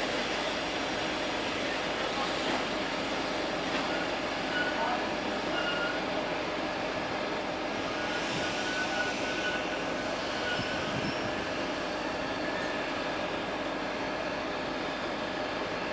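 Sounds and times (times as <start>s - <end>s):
train rumbling on rails: 0.0s - 15.9s
faint high squealing: 8.0s - 11.4s.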